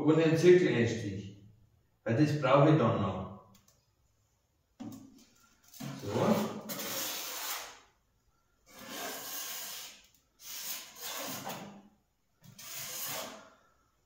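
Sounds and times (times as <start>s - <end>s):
metal point scratching steel sheet: 12.5s - 13.5s.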